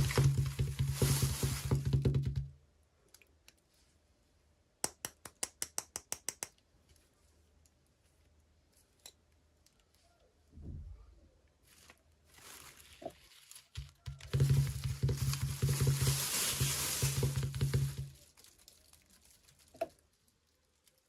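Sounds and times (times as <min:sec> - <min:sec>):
packaging rustling: 0:00.0 - 0:02.2, 0:11.6 - 0:20.3.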